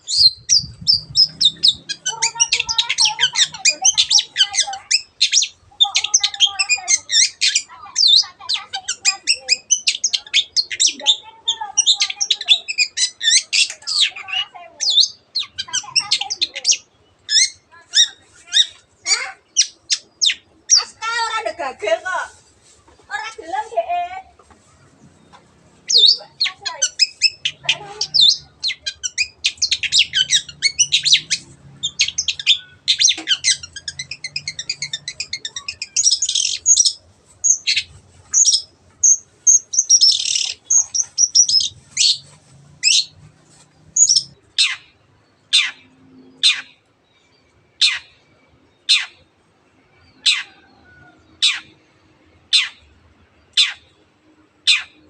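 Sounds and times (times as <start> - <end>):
shrike singing trills: 0.0 - 21.5, 25.1 - 43.2, 43.8 - 46.8
downward-sweeping bird calls: 0.0 - 55.0.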